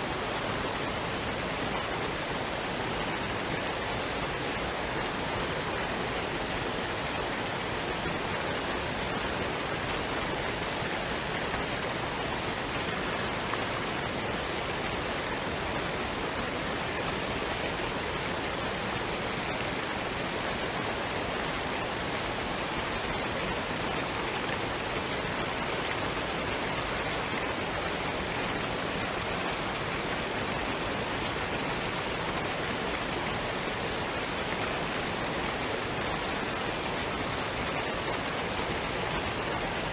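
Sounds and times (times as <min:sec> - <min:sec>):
waterfall and stream rushing: 0:00.0 - 0:39.9.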